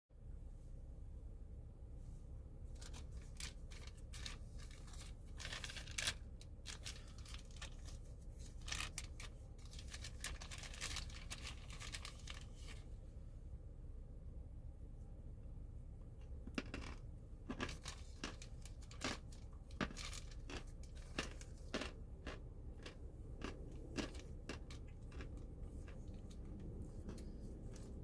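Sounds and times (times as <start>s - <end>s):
crisp crackling and crunching: 2.8s - 12.9s, 16.6s - 28.0s.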